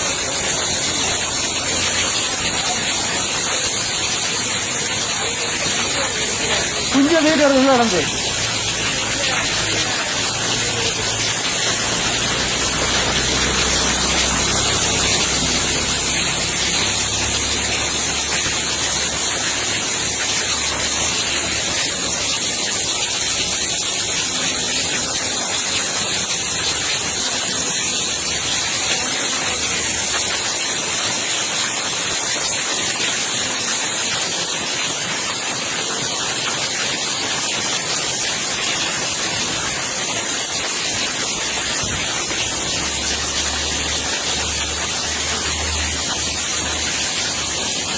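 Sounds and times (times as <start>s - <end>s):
floodwater rushing: 0.0s - 47.9s
heavy rain: 0.0s - 47.9s.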